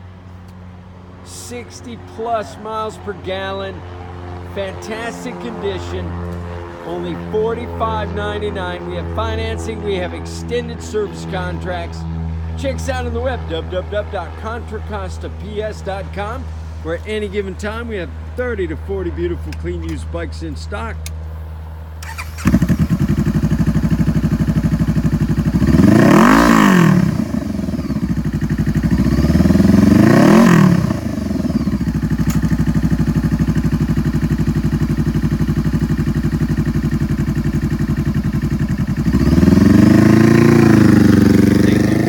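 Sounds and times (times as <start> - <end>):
motorcycle engine idling: 22.0 - 42.0
motorcycle engine revving: 22.0 - 42.0.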